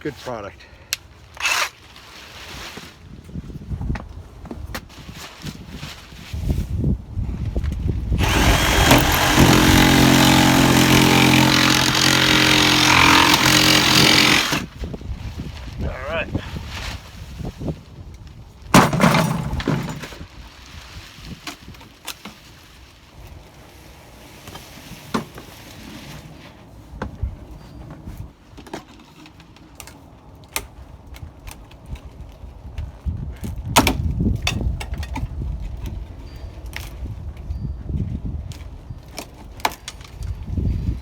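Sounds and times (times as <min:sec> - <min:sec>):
loud wooden clatter: 0:08.2 - 0:14.7, 0:18.7 - 0:20.2
wood knocking and cracking: 0:08.2 - 0:14.7.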